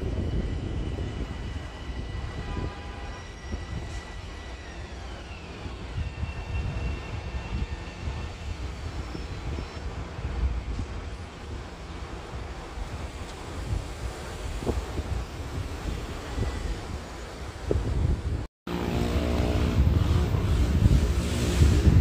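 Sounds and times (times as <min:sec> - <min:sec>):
train rumble: 0:00.0 - 0:22.0
high electric whine: 0:18.7 - 0:22.0.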